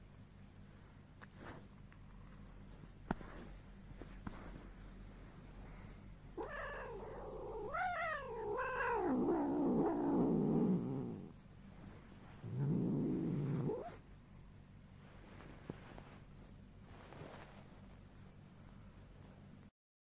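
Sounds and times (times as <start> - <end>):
cat yowling: 6.4 - 11.3.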